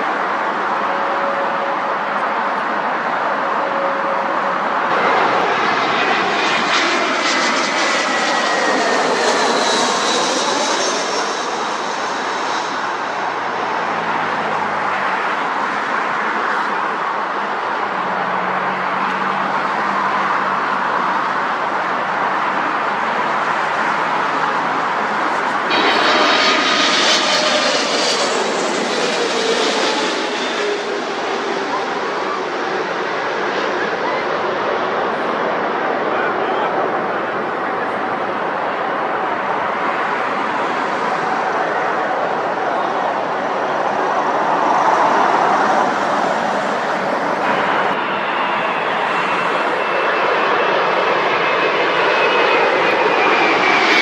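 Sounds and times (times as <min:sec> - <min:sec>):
high aircraft engine whine: 0:00.0 - 0:54.0
jet engines roaring: 0:00.0 - 0:54.0.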